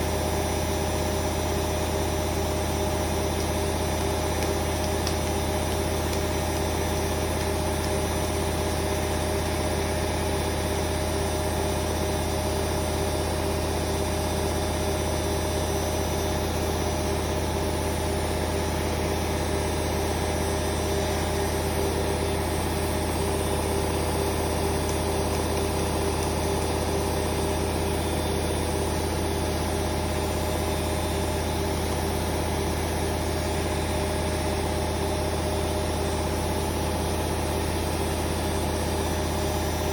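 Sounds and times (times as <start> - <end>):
constant motor whine: 0.0 - 39.9
washing machine spinning: 0.0 - 39.9.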